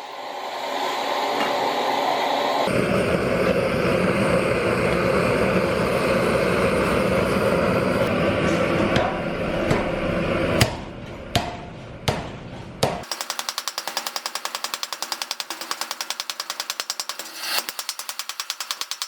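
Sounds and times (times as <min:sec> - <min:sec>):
power tool hammering steel: 0:13.0 - 0:19.0.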